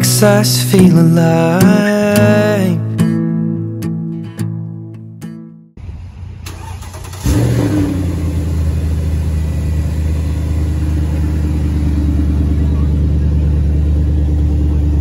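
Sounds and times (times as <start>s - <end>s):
car engine starting and idling: 5.8s - 15.0s.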